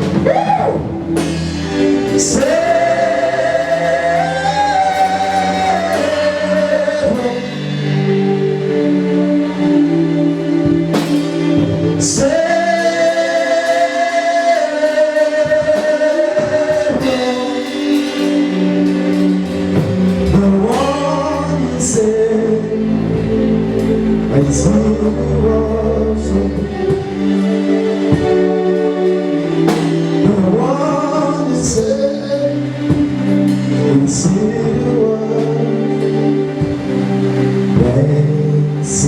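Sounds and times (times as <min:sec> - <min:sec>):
band accompaniment: 0:00.0 - 0:39.0
bass: 0:00.0 - 0:39.0
person singing long notes: 0:00.0 - 0:39.0
cymbal crashes: 0:00.9 - 0:08.2.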